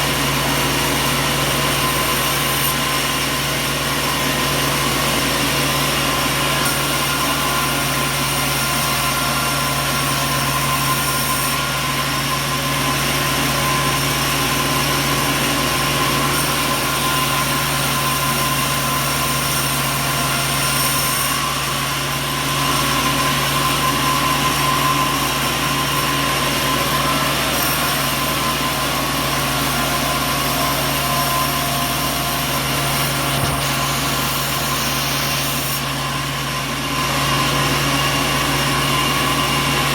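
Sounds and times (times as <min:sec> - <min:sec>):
motor humming: 0:00.0 - 0:39.9.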